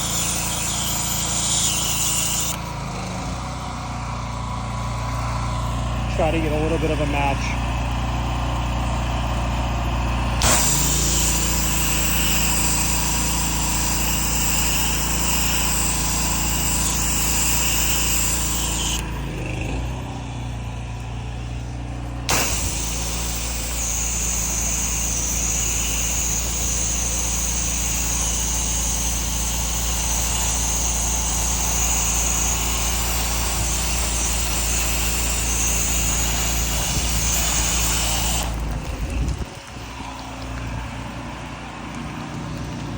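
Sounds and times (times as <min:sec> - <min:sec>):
pressure washer engine running: 0:00.0 - 0:42.9
pressure washer spray hissing: 0:10.4 - 0:19.0, 0:22.3 - 0:38.6.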